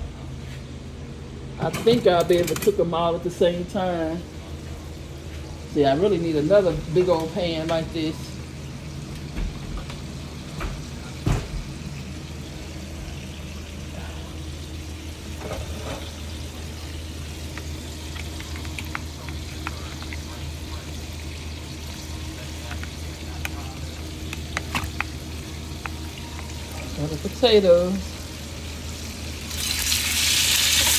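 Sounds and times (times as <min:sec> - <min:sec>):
steady low hum: 0:00.0 - 0:30.2
food sizzling in hot oil: 0:11.9 - 0:30.9
oil crackles and pops: 0:15.3 - 0:27.0, 0:29.4 - 0:30.9.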